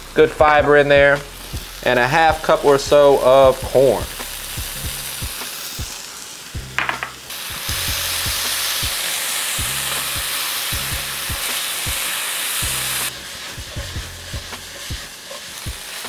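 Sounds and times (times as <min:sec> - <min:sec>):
filling sizzling in a skillet: 0:00.0 - 0:16.0
utensil stirring: 0:12.8 - 0:16.0.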